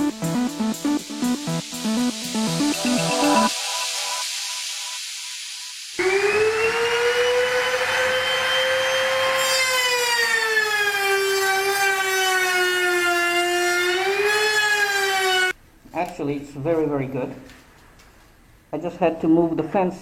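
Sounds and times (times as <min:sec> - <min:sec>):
wood router whining: 0:06.0 - 0:15.6.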